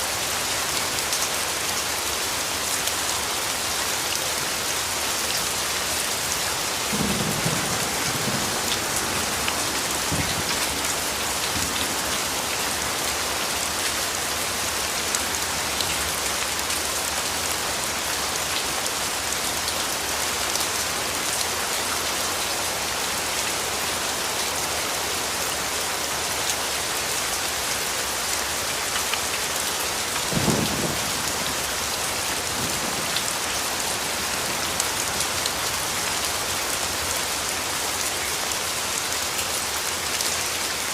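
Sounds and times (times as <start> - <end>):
rain pattering: 0.1 - 40.9
distant thunder rumbles: 6.9 - 11.9, 30.3 - 31.7.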